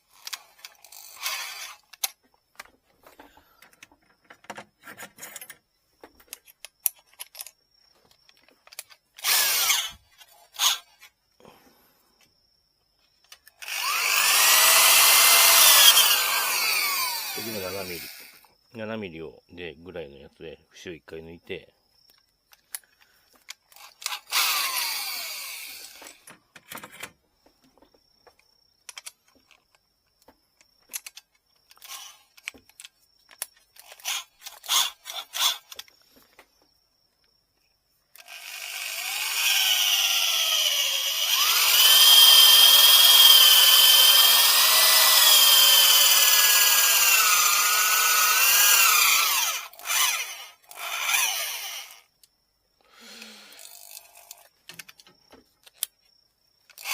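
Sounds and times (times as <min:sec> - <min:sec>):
handling clicks and scrapes: 0:00.0 - 0:11.2, 0:22.0 - 0:24.4, 0:25.7 - 0:36.7, 0:53.5 - 0:56.9
electric drill boring: 0:00.1 - 0:02.0, 0:09.2 - 0:10.9, 0:13.6 - 0:18.5, 0:23.8 - 0:26.2, 0:33.8 - 0:35.7, 0:38.2 - 0:52.1.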